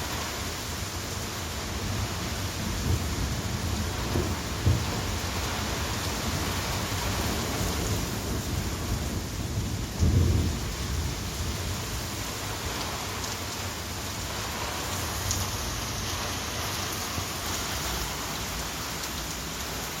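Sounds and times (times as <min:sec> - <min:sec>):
steady rain falling: 0:00.0 - 0:20.0
low rumble of thunder: 0:01.7 - 0:13.3.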